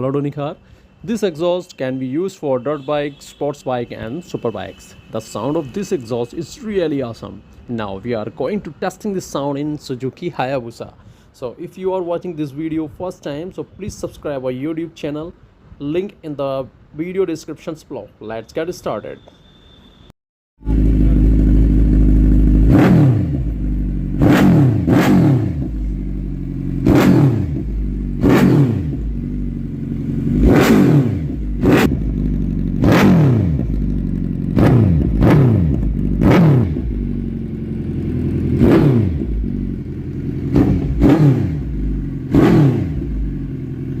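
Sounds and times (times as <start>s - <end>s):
motorcycle engine revving: 20.6s - 44.0s.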